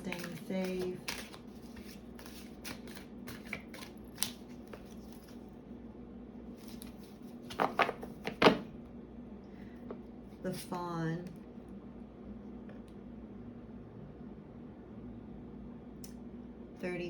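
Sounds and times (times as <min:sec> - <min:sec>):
cards being shuffled: 0:00.0 - 0:05.6, 0:06.5 - 0:08.7.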